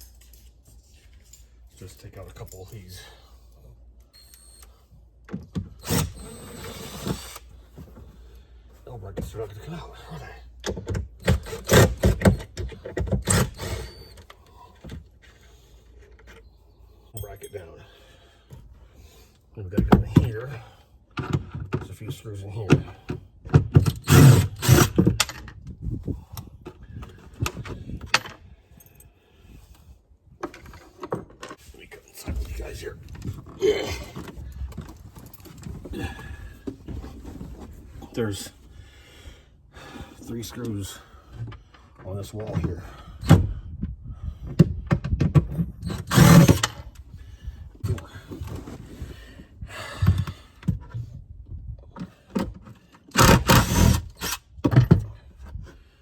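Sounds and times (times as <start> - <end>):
knocks and rattles on a cabinet: 23.5 - 23.9, 44.5 - 45.8, 54.6 - 55.2.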